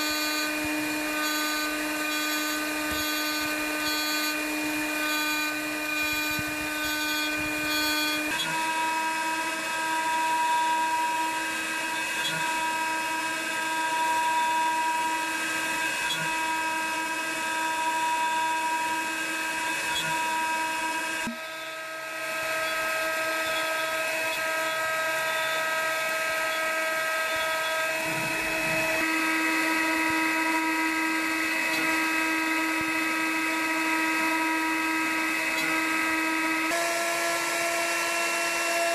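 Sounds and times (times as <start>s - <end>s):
milling machine cutting wood: 0.0s - 38.9s.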